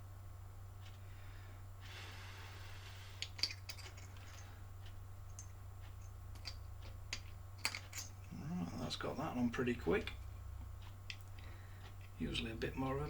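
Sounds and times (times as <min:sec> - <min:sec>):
steady low hum: 0:00.0 - 0:13.0
small tools clicking and tapping: 0:03.2 - 0:08.3, 0:10.0 - 0:12.2.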